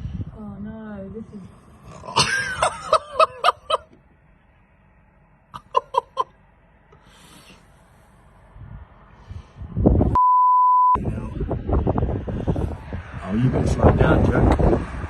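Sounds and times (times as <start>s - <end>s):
person laughing high-pitched: 2.2s - 3.9s, 5.6s - 6.3s.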